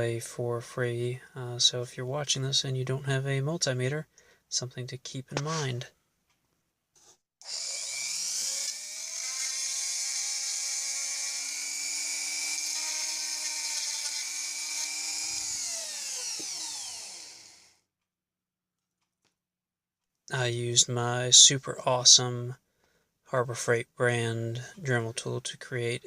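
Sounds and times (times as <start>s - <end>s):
rotary tool high-pitched whine: 7.4s - 17.8s.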